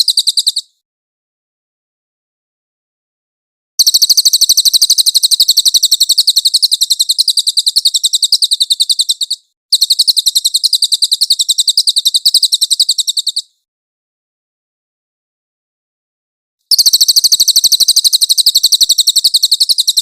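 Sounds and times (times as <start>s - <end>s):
bird singing high trills: 3.8s - 13.6s, 16.7s - 20.0s.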